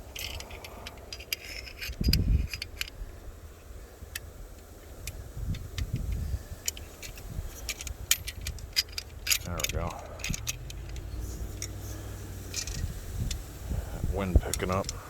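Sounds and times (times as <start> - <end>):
wind buffeting microphone: 0.0 - 15.0
metallic clicks and rattles of saw: 5.0 - 13.5, 14.5 - 15.0.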